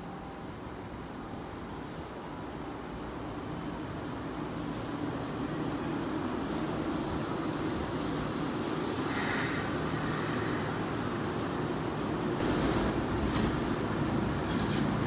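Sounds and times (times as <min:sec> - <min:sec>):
train wheels and motors rumbling: 0:03.1 - 0:15.0
brake squeal: 0:06.8 - 0:09.7.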